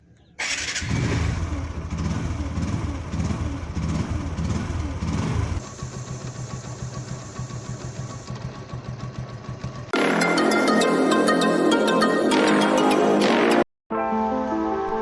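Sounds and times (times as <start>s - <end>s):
motorcycle engine revving: 0.4s - 10.0s.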